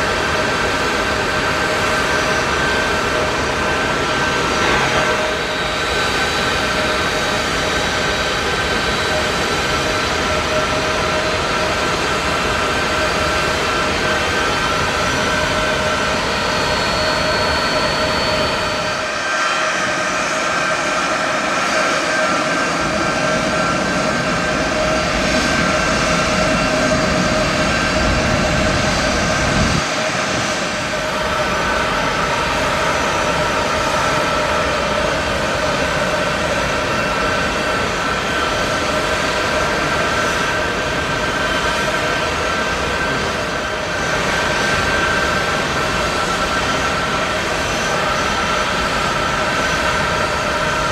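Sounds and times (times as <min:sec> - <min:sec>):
high steady engine whine: 0:00.0 - 0:50.9
jet engines roaring: 0:00.0 - 0:50.9.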